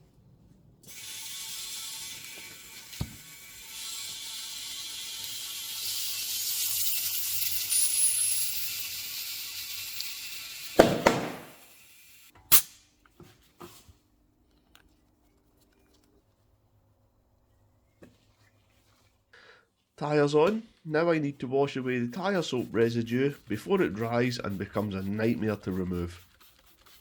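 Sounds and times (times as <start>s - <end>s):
compressed air hissing into tyre: 7.2s - 12.7s
tyre bead bang: 10.8s - 11.6s.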